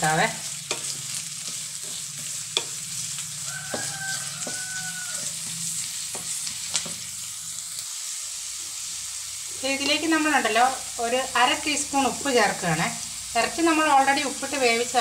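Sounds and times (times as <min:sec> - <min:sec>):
onions sizzling in hot oil: 0:00.0 - 0:15.0
spatula knocking against pan: 0:03.6 - 0:04.8.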